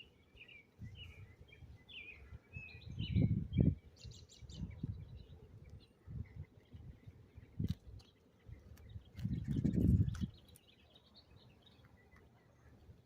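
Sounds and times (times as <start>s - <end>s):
small birds chirping: 0.0s - 13.0s
wind rumble on microphone: 0.7s - 10.6s.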